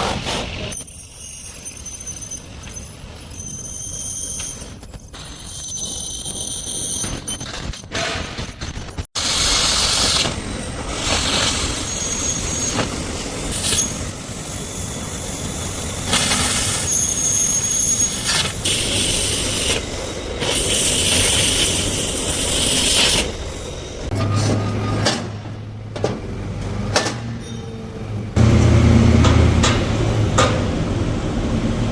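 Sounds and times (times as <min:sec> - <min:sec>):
high-pitched squeal: 0:00.0 - 0:24.9
metal tools hissing harshly: 0:00.2 - 0:24.1.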